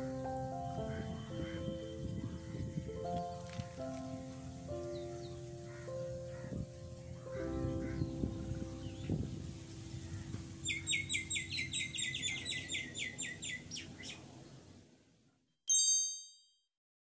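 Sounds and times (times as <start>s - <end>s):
short bright chime: 15.7s - 16.6s.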